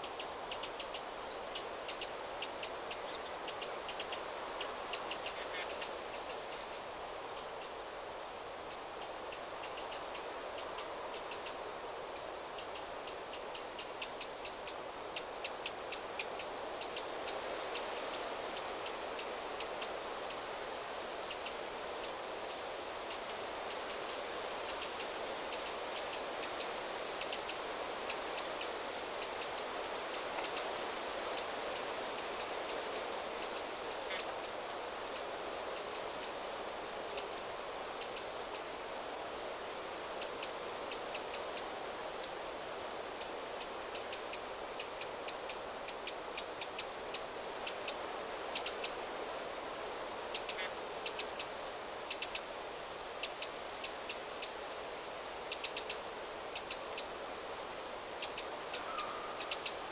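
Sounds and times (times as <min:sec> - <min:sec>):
wind through trees: 0:00.0 - 0:59.9
small birds chirping: 0:58.2 - 0:59.9.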